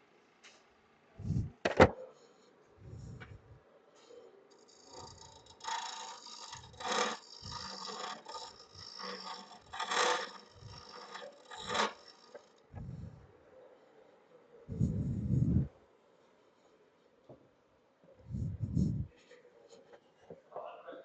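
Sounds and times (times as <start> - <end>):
lathe tool scraping wood: 4.0 - 13.1, 18.3 - 19.8.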